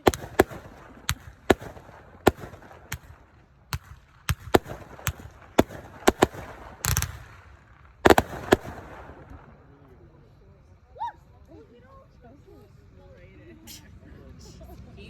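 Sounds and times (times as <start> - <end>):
fireworks burst: 0.0 - 9.4
fireworks bangs: 0.0 - 9.6.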